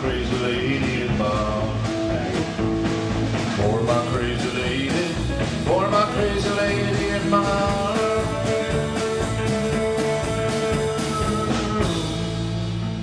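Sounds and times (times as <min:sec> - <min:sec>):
country rock band playing: 0:00.0 - 0:13.0
bending guitar notes: 0:00.1 - 0:13.0.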